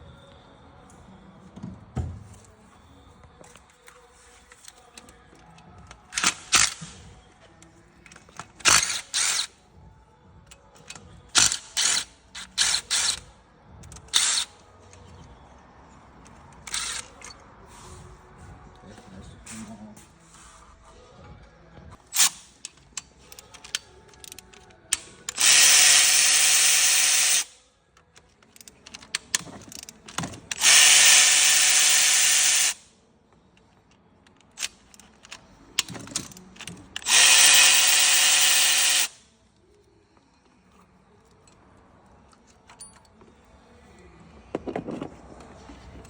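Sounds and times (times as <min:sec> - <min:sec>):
tools clicking and knocking: 0:04.6 - 0:07.0, 0:08.0 - 0:09.5, 0:22.1 - 0:32.8, 0:33.6 - 0:39.1, 0:42.3 - 0:43.3, 0:44.5 - 0:46.0
power tool running: 0:25.3 - 0:27.5, 0:30.6 - 0:32.8, 0:37.0 - 0:39.2.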